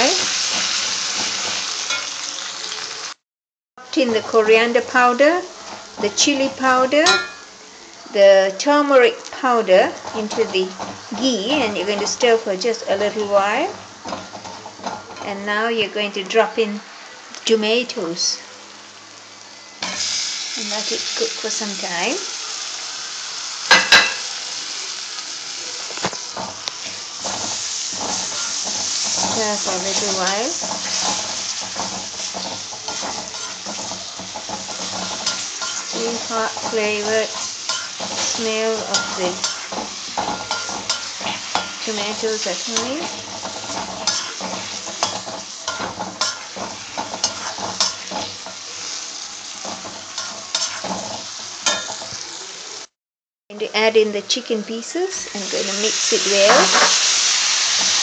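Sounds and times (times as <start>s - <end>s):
spoon scraping against a pan: 0.0s - 2.2s, 9.9s - 15.3s, 25.8s - 52.4s, 56.2s - 58.0s
tomatoes sizzling in hot oil: 0.0s - 3.2s, 3.8s - 53.0s, 53.7s - 58.0s.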